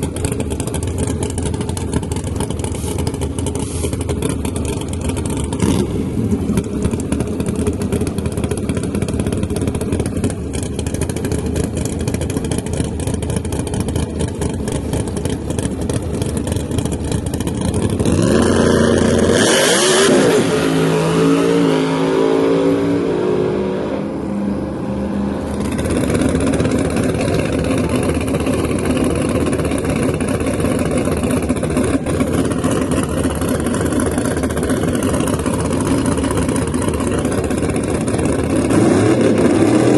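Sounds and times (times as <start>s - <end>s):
race car engines running: 0.0s - 39.9s
race car accelerating hard: 17.4s - 39.9s.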